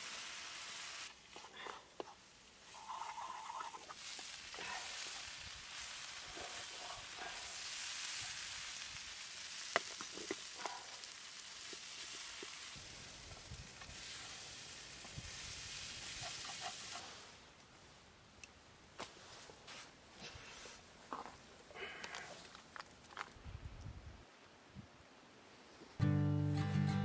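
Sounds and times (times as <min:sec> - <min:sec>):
food sizzling in frying pan: 0:00.0 - 0:01.1, 0:04.0 - 0:17.3.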